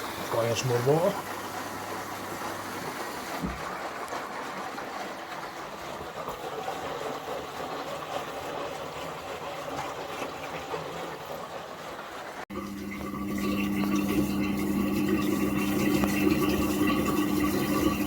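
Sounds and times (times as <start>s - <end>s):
washing machine taking in water: 0.0s - 18.0s
water sloshing in washing machine drum: 0.0s - 18.0s.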